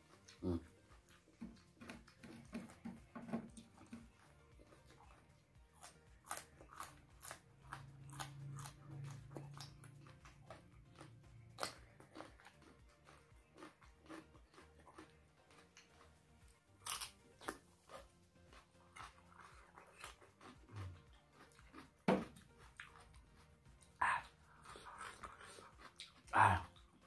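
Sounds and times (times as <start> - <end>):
chewing with wet clicks: 0.0 - 27.0.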